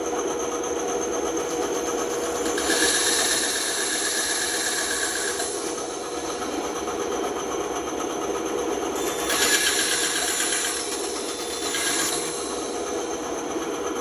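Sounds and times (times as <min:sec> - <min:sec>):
saw blade cutting wood: 0:02.4 - 0:06.8, 0:09.0 - 0:13.2
electric saw running: 0:02.4 - 0:07.5, 0:08.9 - 0:13.5.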